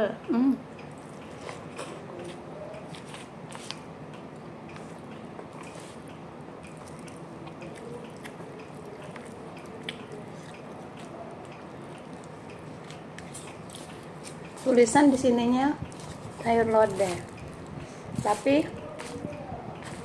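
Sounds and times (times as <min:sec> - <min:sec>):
person chewing: 0:00.8 - 0:14.7, 0:15.8 - 0:17.8, 0:19.8 - 0:20.0
wet mouth clicks and smacks: 0:03.0 - 0:14.6.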